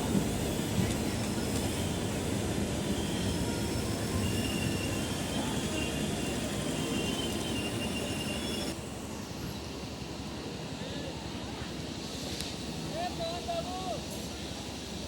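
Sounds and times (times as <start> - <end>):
train wheels rumbling on rails: 0.0 - 15.0
high-pitched wheel squeals: 1.6 - 8.8.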